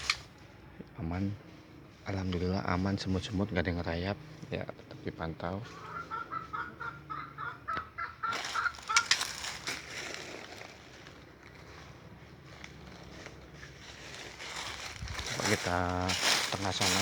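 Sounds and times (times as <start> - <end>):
leaves crunching underfoot: 0.0 - 0.3, 8.3 - 17.0.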